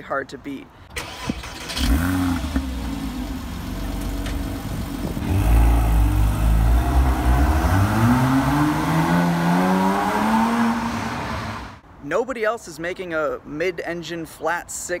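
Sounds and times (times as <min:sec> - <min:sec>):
car engine revving: 0:01.5 - 0:11.8.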